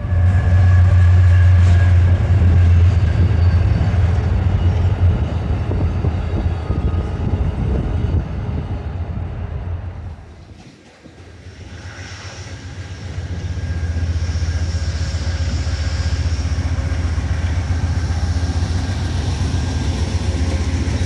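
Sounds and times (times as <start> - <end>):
passenger train passing: 0.0 - 21.0.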